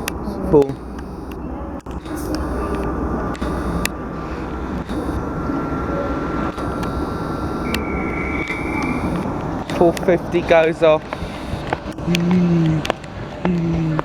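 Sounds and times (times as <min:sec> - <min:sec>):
sharp clicks: 0:00.0 - 0:04.0, 0:04.8 - 0:05.3, 0:06.5 - 0:13.1
thin steady whine: 0:00.0 - 0:14.0
higher tone: 0:02.0 - 0:10.8.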